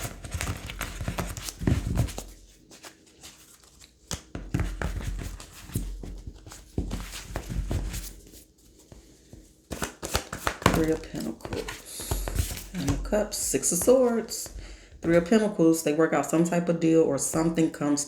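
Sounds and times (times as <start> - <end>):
cards being shuffled: 0.0 - 15.3
cards laid down: 9.3 - 15.3.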